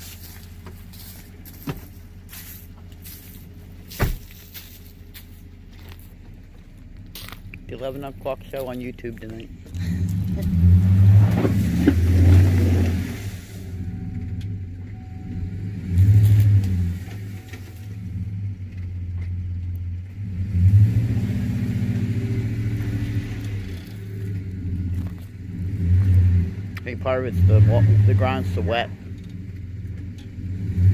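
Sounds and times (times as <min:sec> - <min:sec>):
pickup truck engine revving: 0:07.0 - 0:30.9.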